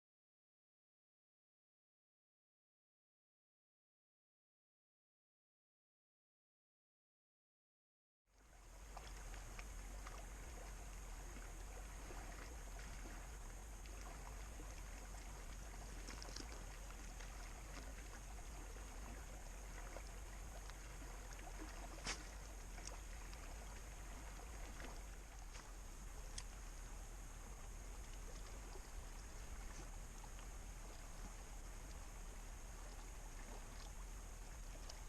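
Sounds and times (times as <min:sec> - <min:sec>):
stream water flowing: 0:08.4 - 0:35.0
small ticks and clicks: 0:13.8 - 0:18.6, 0:24.5 - 0:26.9.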